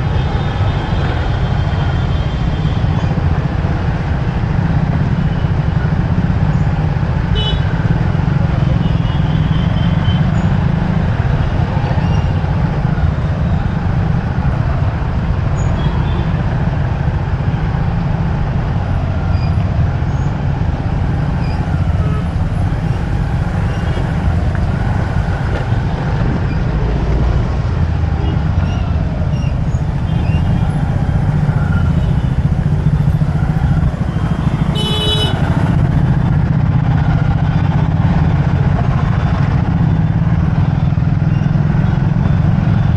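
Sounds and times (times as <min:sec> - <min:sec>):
motorcycle engine and road noise: 0:00.0 - 0:42.9
vehicle horn: 0:07.4 - 0:07.7, 0:34.5 - 0:35.8.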